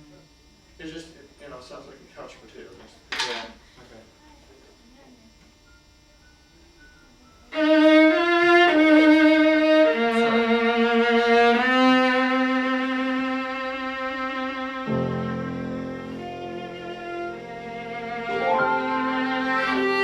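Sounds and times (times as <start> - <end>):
viola playing with vibrato: 7.5 - 20.0.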